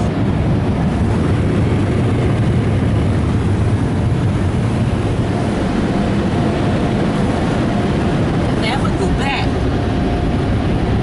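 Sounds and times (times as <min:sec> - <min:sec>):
car wash dryer blowers: 0:00.0 - 0:11.0.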